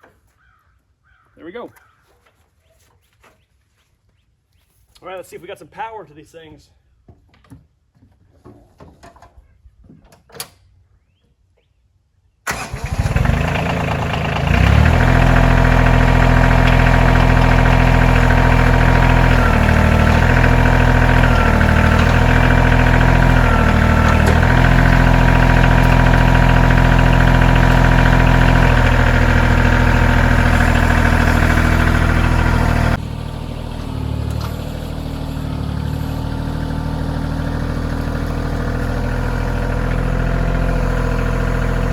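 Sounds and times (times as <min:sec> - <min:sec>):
tractor diesel engine running: 0:12.5 - 0:41.9.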